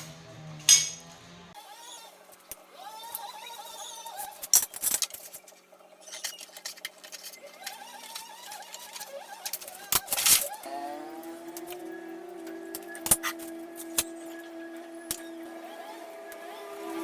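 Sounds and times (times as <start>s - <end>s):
small hard parts clinking: 0.7s - 1.1s, 4.2s - 17.0s
wavering mechanical whine: 5.4s - 17.0s.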